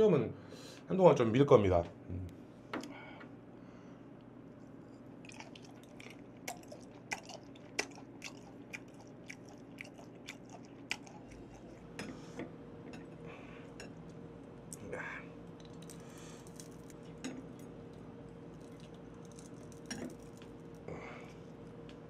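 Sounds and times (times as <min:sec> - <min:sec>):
person chewing: 0:05.0 - 0:12.1, 0:15.5 - 0:21.4.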